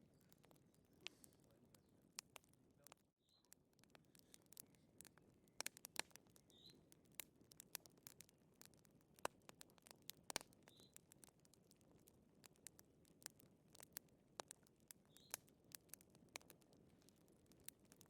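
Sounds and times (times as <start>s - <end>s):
fireplace fire crackling: 0.0s - 18.0s.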